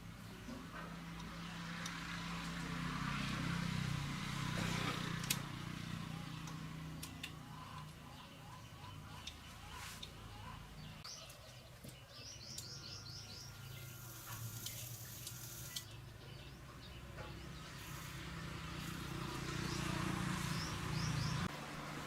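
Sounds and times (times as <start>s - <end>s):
small birds chirping: 5.1s - 21.5s.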